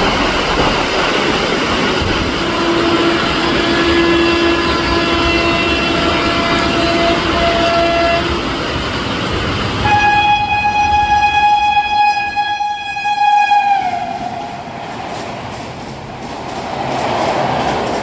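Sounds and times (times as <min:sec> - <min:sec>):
train rushing past: 0:00.0 - 0:18.0
locomotive horn: 0:02.4 - 0:08.4, 0:09.8 - 0:14.7.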